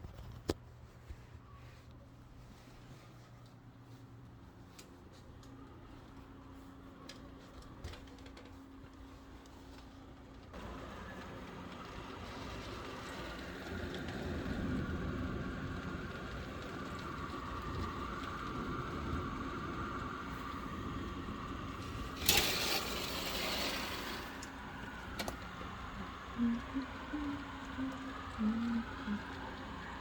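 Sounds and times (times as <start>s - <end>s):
rainstorm: 10.6s - 30.0s.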